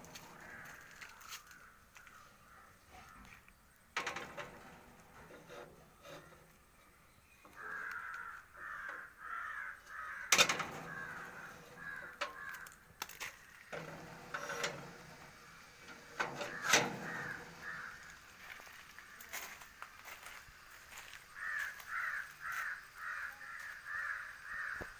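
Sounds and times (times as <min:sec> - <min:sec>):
crow cawing: 0:00.1 - 0:03.4, 0:07.5 - 0:12.8, 0:16.5 - 0:19.6, 0:21.3 - 0:24.9.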